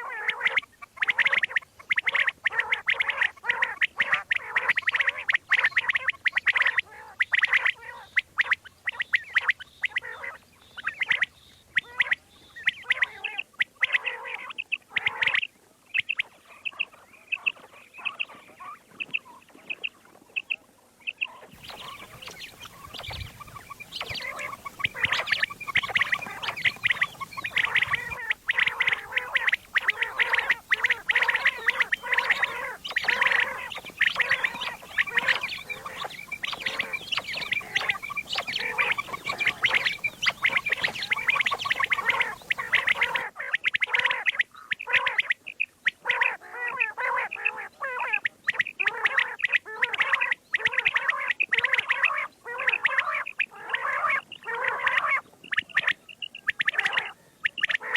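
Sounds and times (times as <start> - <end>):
quail calling: 0.0 - 57.9
background hiss: 21.1 - 43.3.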